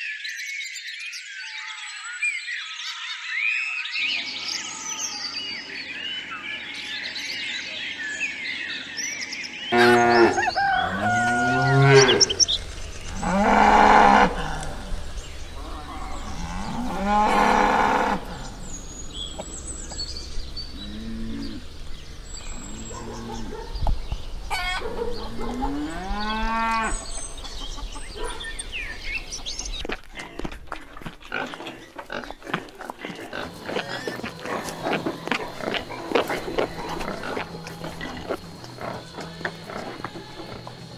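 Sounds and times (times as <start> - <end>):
cattle mooing: 9.7 - 18.9.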